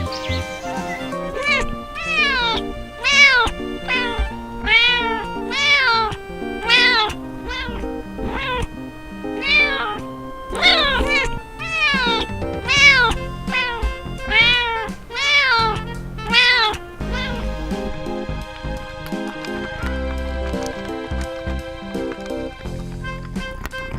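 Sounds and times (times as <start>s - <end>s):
cat meowing: 0.0s - 18.0s
background music: 0.0s - 23.9s.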